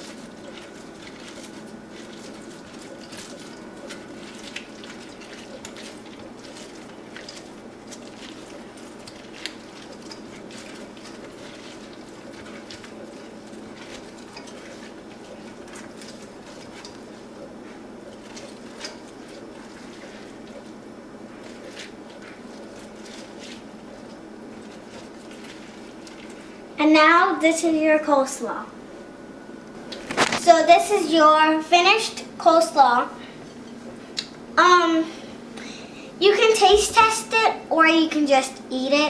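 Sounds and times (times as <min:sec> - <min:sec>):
coleslaw squishing in a bowl: 0:00.0 - 0:26.8, 0:29.9 - 0:30.6.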